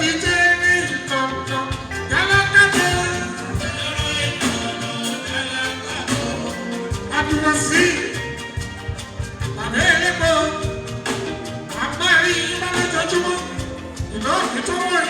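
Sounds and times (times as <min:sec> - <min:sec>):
person singing: 0:00.0 - 0:08.6
quick drum and percussion: 0:00.0 - 0:15.0.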